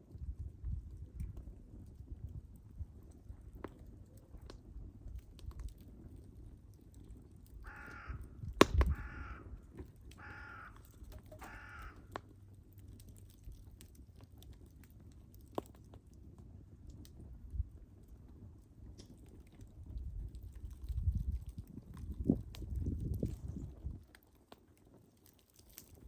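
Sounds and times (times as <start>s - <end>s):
wood fire crackling and popping: 0.0s - 26.0s
bird cawing: 7.6s - 8.3s, 8.9s - 12.2s.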